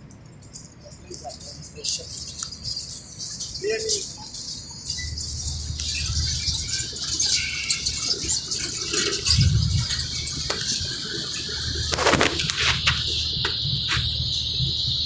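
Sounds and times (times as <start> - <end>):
steady hiss: 0.0 - 15.0
low hum: 4.3 - 15.0.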